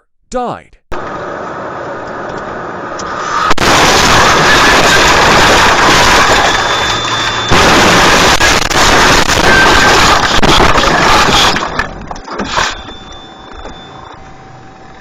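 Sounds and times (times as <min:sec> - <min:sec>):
rough rushing noise: 0:00.9 - 0:11.7
road and vehicle noise: 0:00.9 - 0:15.0.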